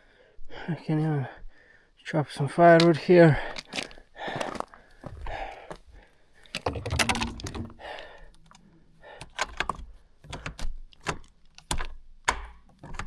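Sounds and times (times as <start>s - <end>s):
objects clicking and clattering: 6.4s - 8.6s.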